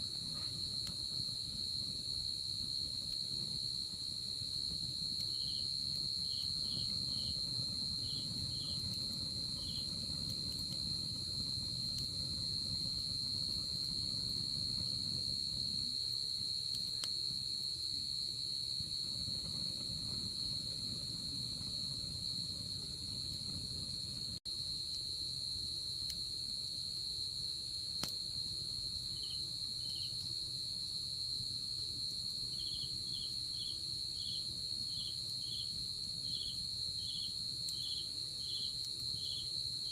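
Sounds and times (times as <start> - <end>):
insect high steady trill: 0.0 - 39.9.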